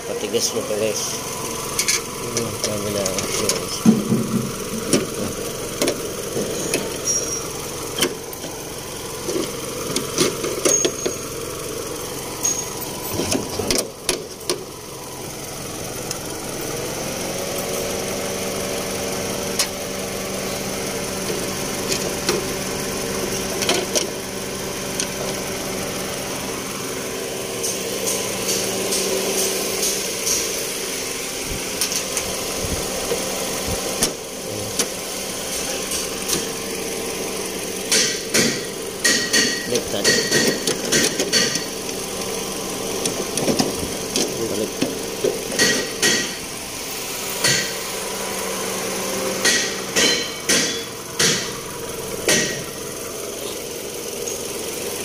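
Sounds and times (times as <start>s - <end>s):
motor humming: 0.0s - 55.0s
hand tools clinking on metal: 6.5s - 7.5s, 12.4s - 13.8s, 37.9s - 41.7s.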